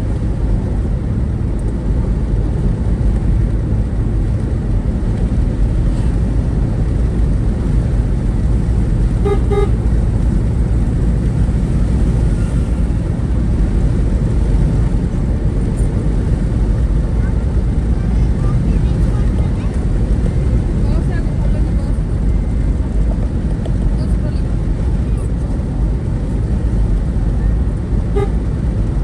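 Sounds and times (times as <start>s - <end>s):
road vehicle rumble: 0.0s - 29.0s
vehicle horn beeps: 9.2s - 9.9s, 28.1s - 28.5s.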